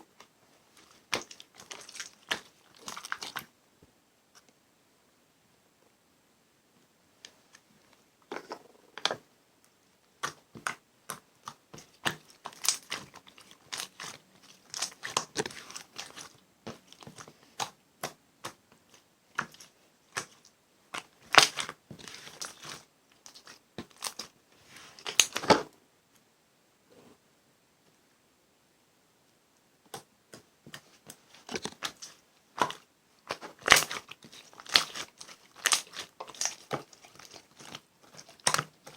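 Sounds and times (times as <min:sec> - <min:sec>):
slime crackling and popping: 0:00.9 - 0:03.5, 0:10.2 - 0:18.6, 0:19.4 - 0:24.3, 0:25.0 - 0:25.6, 0:30.7 - 0:38.9.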